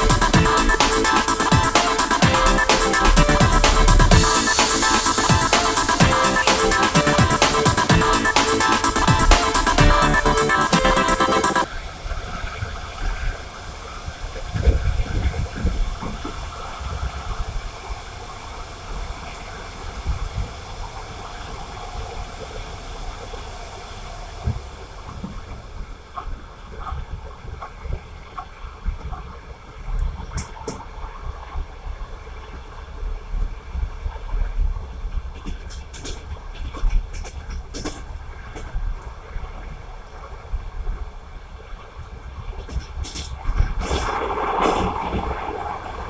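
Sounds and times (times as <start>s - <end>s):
train rushing rumble: 0.0s - 46.0s.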